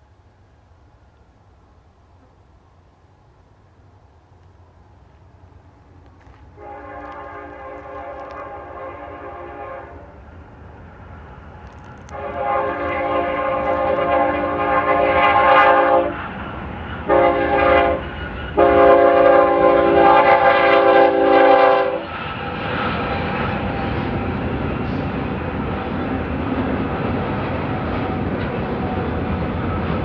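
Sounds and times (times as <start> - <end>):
passing train rumble: 0.0 - 30.0
locomotive air horn blasts: 6.6 - 10.2, 12.1 - 16.3, 17.0 - 22.2.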